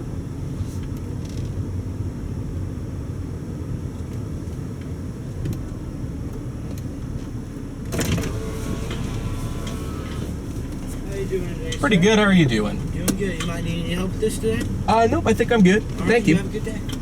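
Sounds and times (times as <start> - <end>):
car engine running low: 0.0 - 17.0
road rumble: 0.0 - 17.0.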